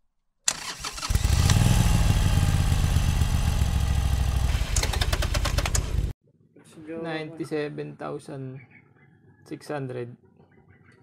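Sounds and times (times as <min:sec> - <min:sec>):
motorcycle engine running: 0:01.0 - 0:06.1.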